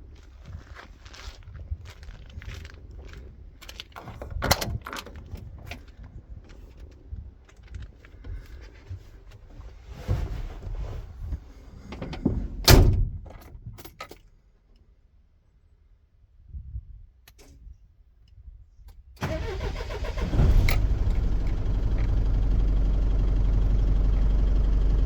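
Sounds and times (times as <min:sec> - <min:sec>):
truck door slamming: 0:12.7 - 0:13.1.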